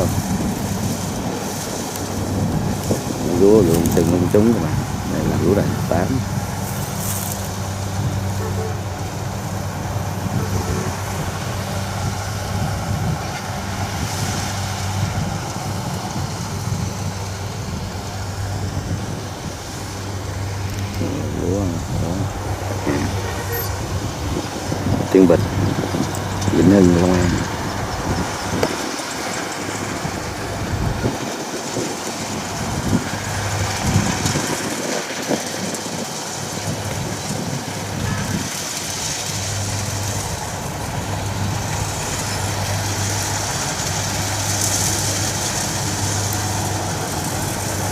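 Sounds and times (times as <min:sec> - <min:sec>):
combine harvester diesel engine: 0:00.0 - 0:47.9
harvester working noise: 0:00.0 - 0:47.9.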